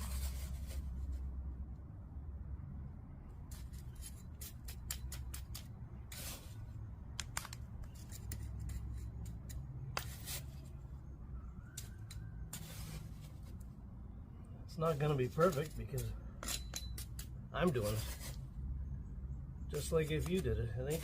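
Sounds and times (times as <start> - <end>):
gritty asphalt scrapes: 0.0 - 1.3, 3.5 - 10.8, 11.8 - 13.7, 14.7 - 18.6, 19.7 - 21.0
stones and tool clicking: 3.5 - 6.4, 7.1 - 10.3.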